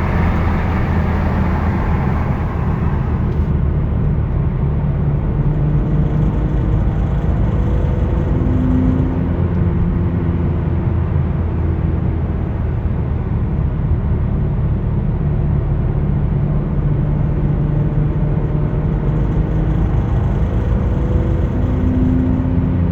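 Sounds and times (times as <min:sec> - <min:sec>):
faint tones drifting in pitch: 0:00.0 - 0:03.5
road noise: 0:00.0 - 0:05.1
car engine: 0:00.0 - 0:12.3, 0:17.4 - 0:22.9.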